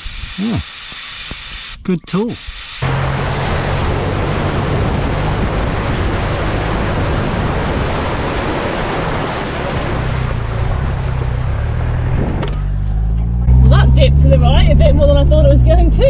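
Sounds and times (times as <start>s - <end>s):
water splashing against vehicle: 2.8s - 12.4s
car engine droning: 2.8s - 16.0s.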